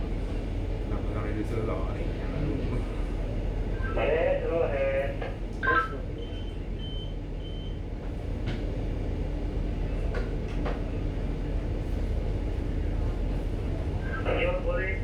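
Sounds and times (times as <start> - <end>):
ship machinery hum: 8.0 - 15.0.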